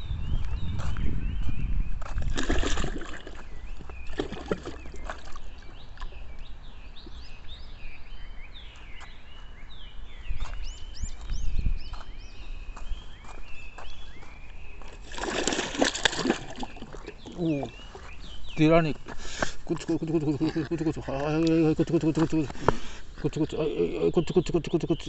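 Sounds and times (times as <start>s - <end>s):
birds peeping: 0.0s - 25.0s
water splashing: 2.2s - 6.1s, 15.0s - 18.0s, 19.7s - 23.8s.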